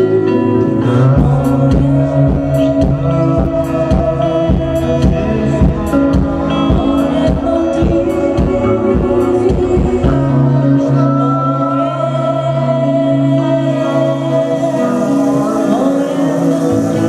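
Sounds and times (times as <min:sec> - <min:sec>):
steady drum beat: 0:01.2 - 0:10.4.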